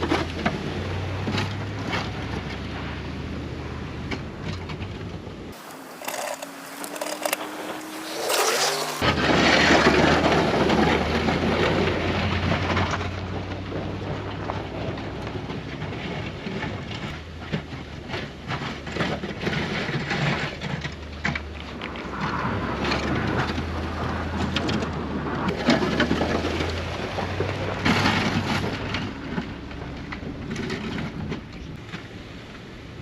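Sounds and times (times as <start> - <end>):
low engine hum: 0.0 - 33.0
rising tone: 5.6 - 9.0
wind rushing over microphone: 21.6 - 33.0.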